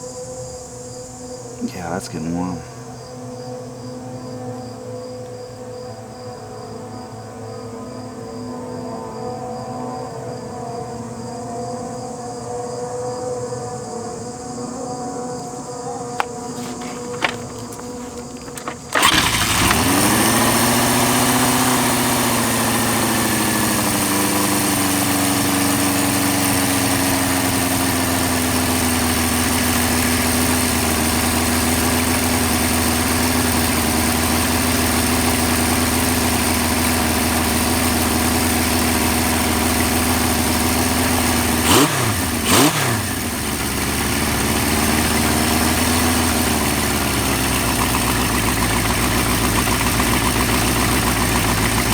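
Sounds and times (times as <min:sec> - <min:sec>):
motorcycle engine starting and idling: 0:00.0 - 0:05.4, 0:15.9 - 0:51.9.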